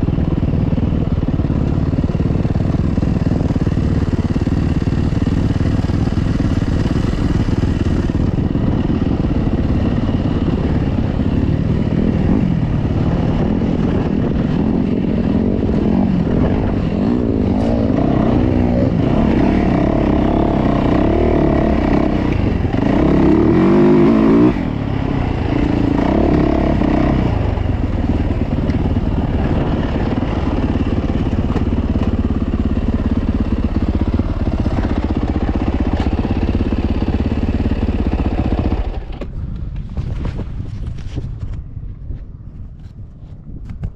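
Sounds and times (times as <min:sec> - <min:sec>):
dirt bike engine revving: 0:02.8 - 0:39.2.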